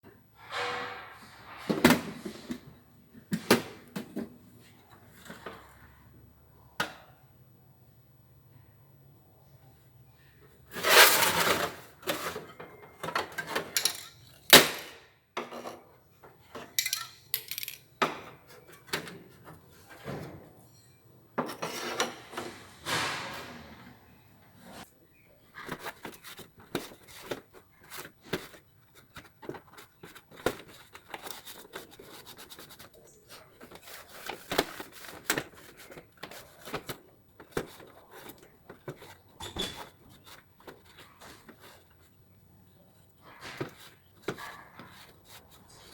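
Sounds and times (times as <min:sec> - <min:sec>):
metal tools clinking: 0:13.0 - 0:14.9, 0:16.8 - 0:17.9.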